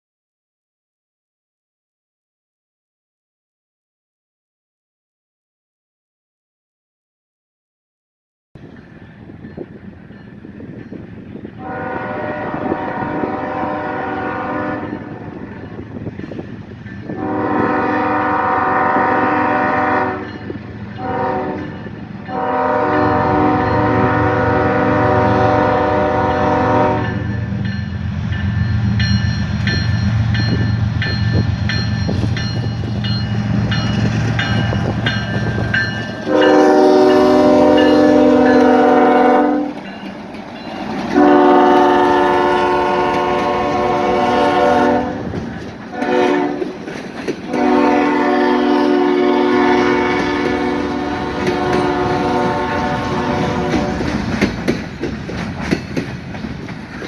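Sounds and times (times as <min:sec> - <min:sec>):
train rumbling: 0:08.6 - 0:57.0
locomotive air horn blasts: 0:11.6 - 0:15.3, 0:17.1 - 0:20.4, 0:21.0 - 0:27.5, 0:36.2 - 0:39.8, 0:41.2 - 0:46.7, 0:47.5 - 0:54.2
high ringing: 0:27.0 - 0:39.0.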